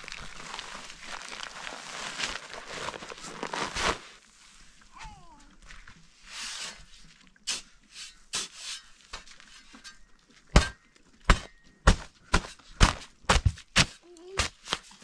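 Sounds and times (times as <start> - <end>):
soft scraping and rustling: 0.3 - 11.2.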